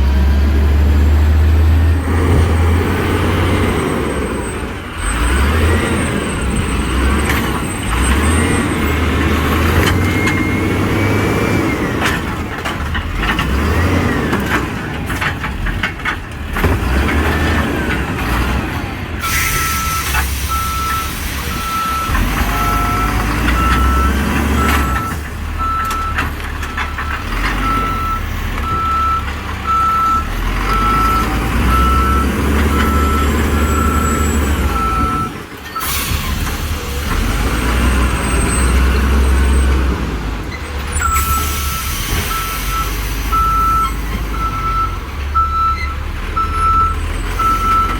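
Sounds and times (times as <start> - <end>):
garbage truck engine running: 0.0 - 47.9
reverse alarm beeping: 19.5 - 35.9, 41.0 - 47.9.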